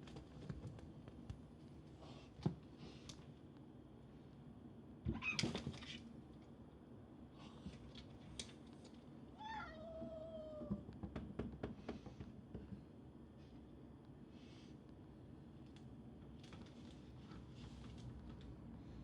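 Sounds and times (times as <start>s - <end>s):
cat meowing: 9.4s - 10.8s.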